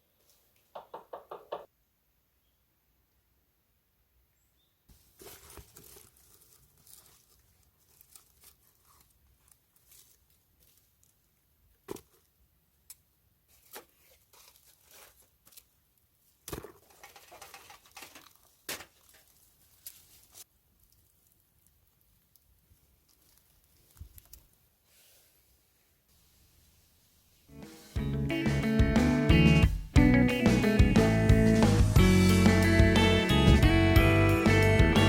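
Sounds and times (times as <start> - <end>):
crinkling rustle: 4.9 - 28.0.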